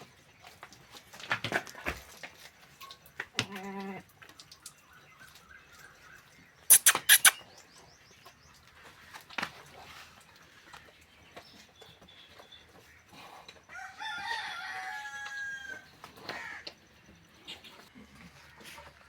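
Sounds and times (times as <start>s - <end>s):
faint bird chirps: 4.7s - 8.5s
animal call: 6.7s - 7.5s.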